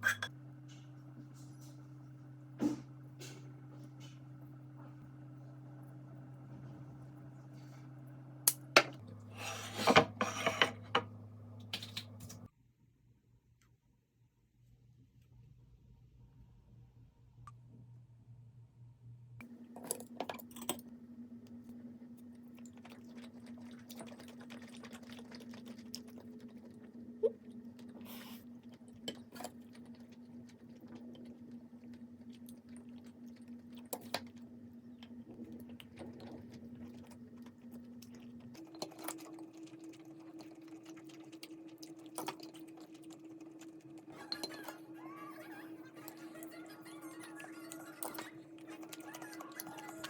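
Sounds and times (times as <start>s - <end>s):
appliance hum: 0.0s - 50.0s
kitchenware clinking: 9.5s - 11.1s.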